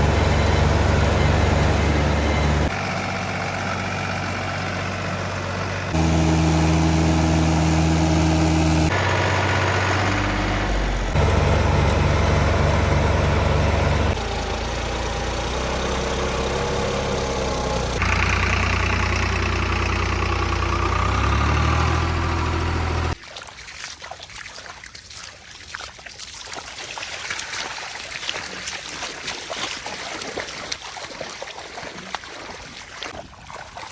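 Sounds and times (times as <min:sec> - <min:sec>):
tractor diesel engine running: 0:00.0 - 0:23.2.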